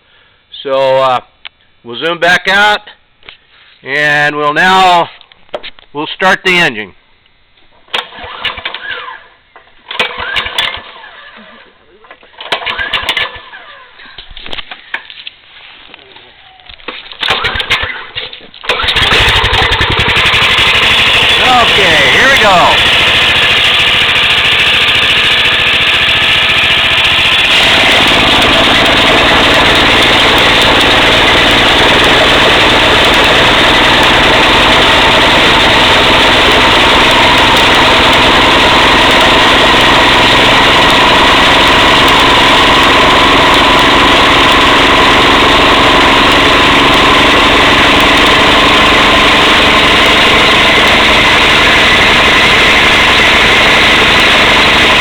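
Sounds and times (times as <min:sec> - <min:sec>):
stump grinder engine running: 0:07.9 - 0:09.2, 0:09.9 - 0:11.4, 0:12.4 - 0:13.9, 0:17.2 - 0:55.0.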